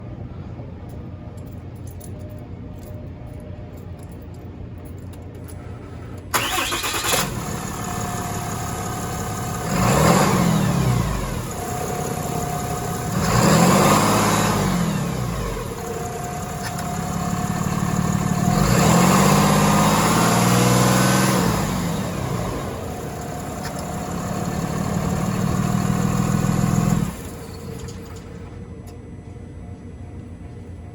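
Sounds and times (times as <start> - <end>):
truck engine idling and revving: 5.3 - 28.6
truck engine starting: 5.7 - 28.6.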